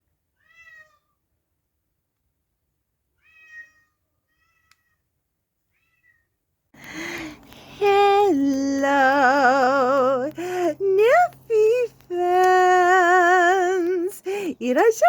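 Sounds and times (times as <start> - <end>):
cat meowing: 0.4 - 1.2, 3.2 - 5.0, 5.7 - 6.3.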